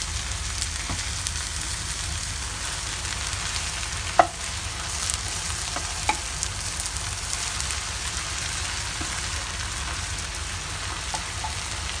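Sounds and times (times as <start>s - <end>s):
food sizzling in a frying pan: 0.0s - 12.0s
utensil knocking against pan: 4.2s - 4.4s.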